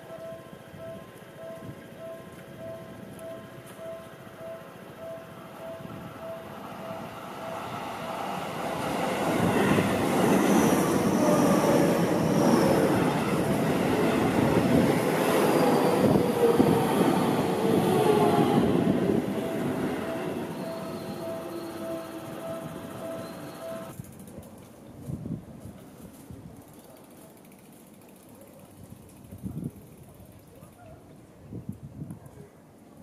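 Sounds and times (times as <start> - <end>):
train whine falling in pitch: 0.0 - 23.9
electric train passing: 0.0 - 24.2.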